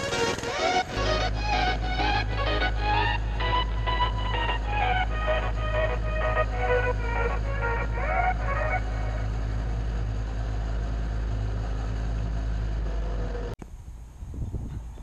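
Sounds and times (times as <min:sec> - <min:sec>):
background music: 0:00.0 - 0:10.6.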